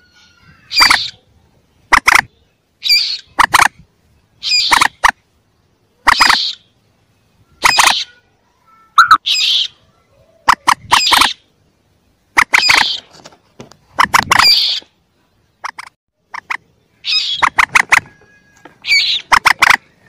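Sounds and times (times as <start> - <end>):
moorhen chick calls: 0.0 - 3.8, 4.4 - 5.2, 6.0 - 6.8, 7.4 - 8.2, 9.0 - 11.6, 12.3 - 13.2, 13.9 - 14.9, 15.6 - 20.0.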